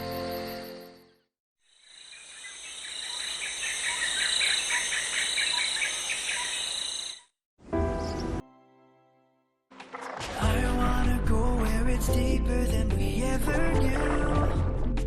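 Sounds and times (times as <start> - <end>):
insects chirping: 0.0 - 7.3
music: 7.6 - 15.0.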